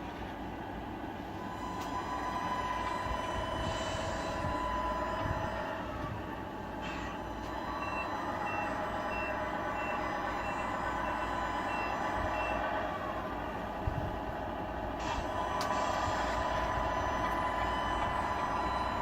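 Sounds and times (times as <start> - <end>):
simulated diesel engine running: 0.0 - 19.0
reversing beeper beeps: 6.8 - 13.7, 15.4 - 19.0.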